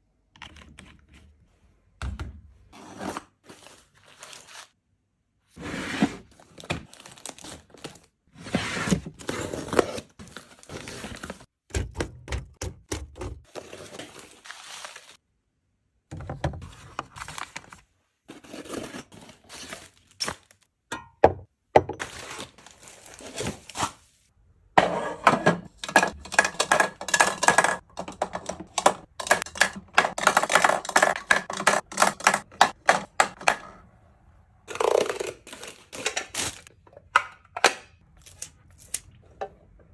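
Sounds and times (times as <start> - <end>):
items clicking and thunking: 6.4 - 14.3, 16.1 - 17.8, 24.8 - 33.9, 34.7 - 39.9.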